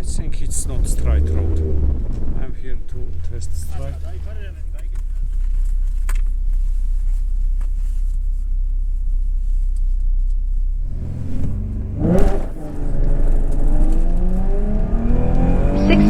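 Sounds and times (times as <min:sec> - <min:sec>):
car engine idling: 0:00.0 - 0:16.0
car engine revving hard: 0:00.4 - 0:04.8, 0:10.8 - 0:16.0.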